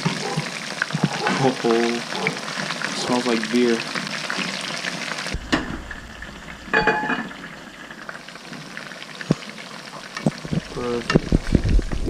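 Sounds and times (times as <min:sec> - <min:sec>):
fish deep-frying in oil: 0:00.0 - 0:12.0.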